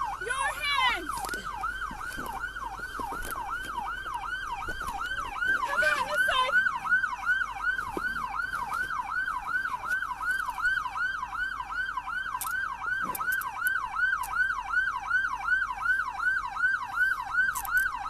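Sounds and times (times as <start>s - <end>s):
police siren yelping: 0.0s - 18.0s.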